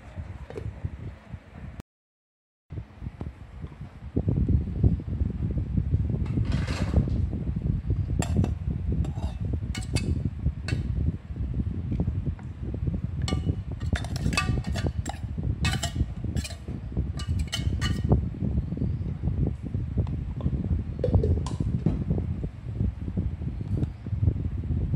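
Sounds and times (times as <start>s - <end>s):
steady low rumble: 2.7s - 24.9s
metal spoon clinking on bowl: 9.1s - 10.1s, 13.3s - 16.6s, 17.2s - 18.1s.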